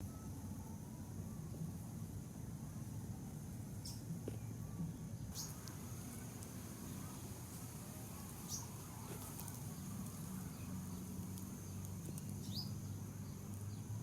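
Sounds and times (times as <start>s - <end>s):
fly wings buzzing: 5.4s - 12.8s.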